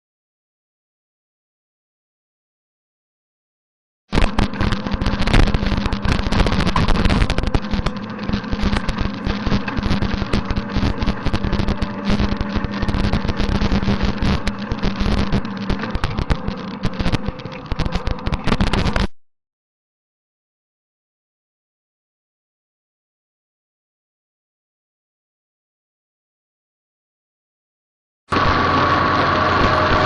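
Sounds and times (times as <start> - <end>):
rotary tiller clatter: 4.1 - 19.1, 28.3 - 30.0
tractor engine humming: 4.2 - 18.9, 28.3 - 30.0.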